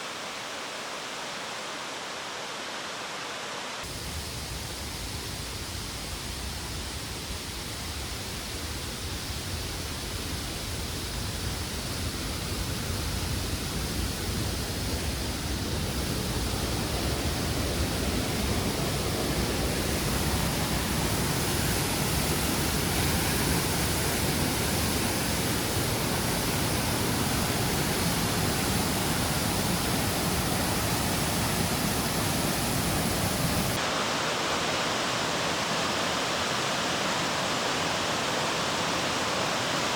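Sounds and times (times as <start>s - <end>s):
stream rushing over rocks: 16.3s - 39.9s.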